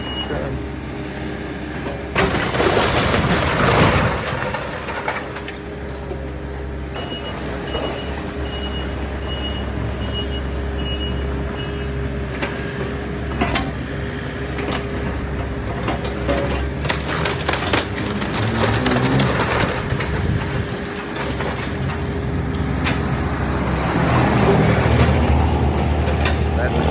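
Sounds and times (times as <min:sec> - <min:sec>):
heavy machinery engine rumble: 0:00.0 - 0:26.9
loud crashing and crushing: 0:01.9 - 0:08.4, 0:12.4 - 0:26.9.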